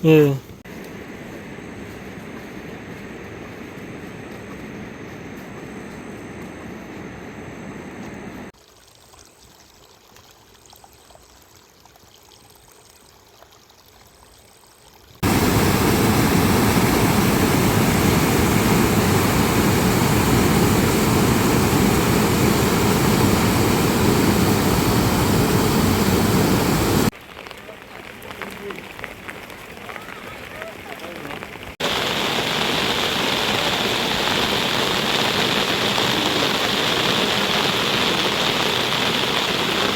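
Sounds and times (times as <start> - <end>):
rushing water: 15.2 - 39.9.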